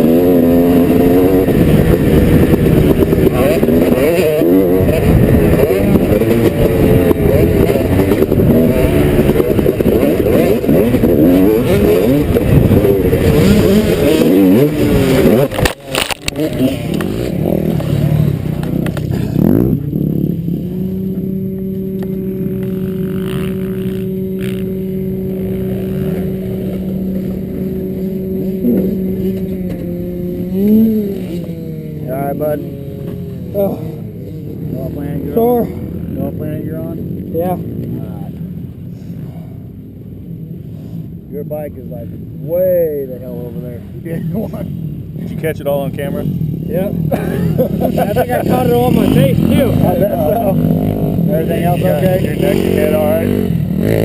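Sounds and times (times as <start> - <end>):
motorbike engine revving: 0.0 - 54.0
steady drone: 0.0 - 54.0
wind noise: 0.8 - 16.8.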